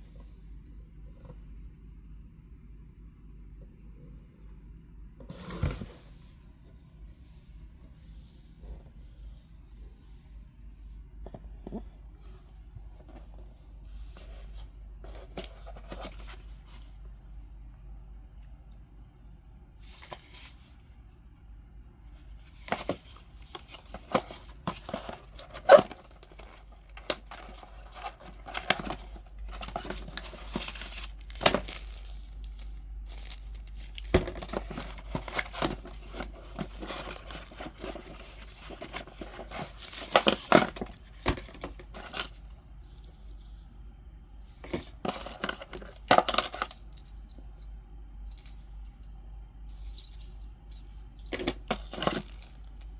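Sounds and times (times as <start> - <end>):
packaging rustling and tearing: 22.7 - 42.1.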